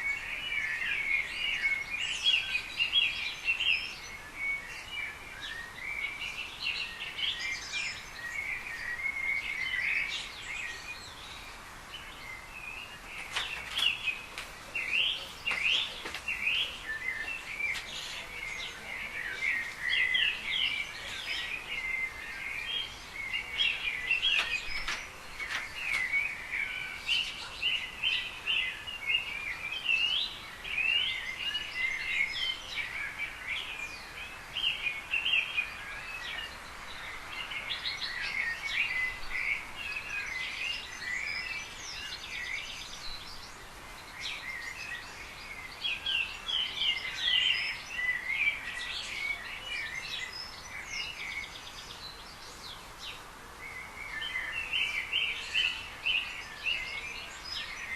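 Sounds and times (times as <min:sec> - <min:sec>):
songbirds chirping and trilling: 0:00.0 - 0:57.9.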